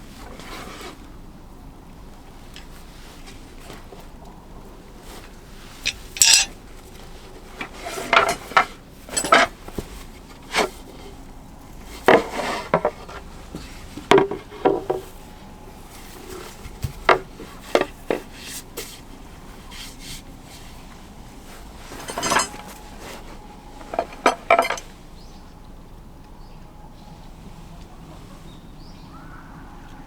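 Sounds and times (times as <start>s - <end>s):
pots and cutlery clinking: 22.0s - 22.8s, 23.8s - 24.9s.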